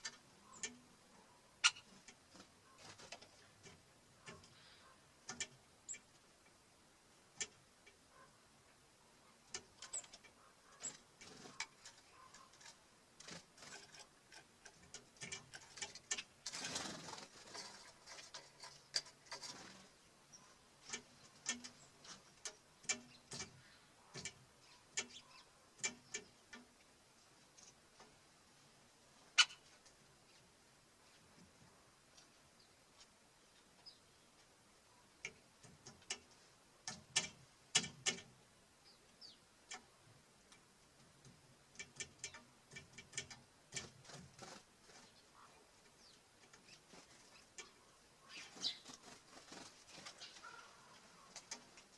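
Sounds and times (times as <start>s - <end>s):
birds pecking on wood: 0.0s - 51.9s
rustling: 9.3s - 38.4s, 39.7s - 51.9s.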